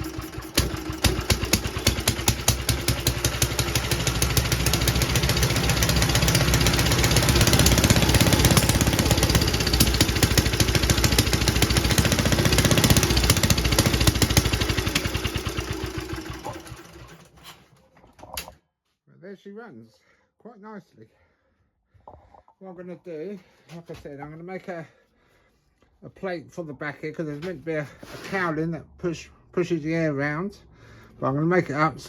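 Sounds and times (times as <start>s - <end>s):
stationary engine running: 0.0s - 17.2s.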